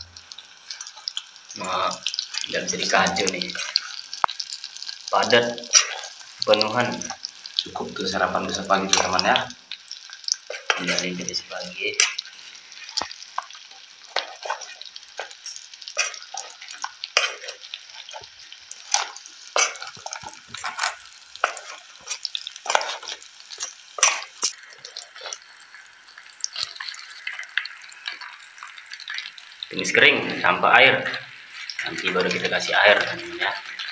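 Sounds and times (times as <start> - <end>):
food sizzling in a pan: 0.0 - 33.9
utensil scraping a pan: 13.7 - 25.4.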